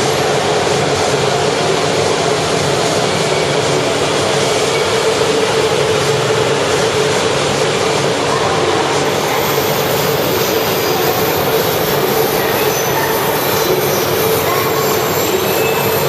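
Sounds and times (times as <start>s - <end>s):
train wheels rumbling: 0.0s - 16.0s
steady tone: 8.7s - 16.0s.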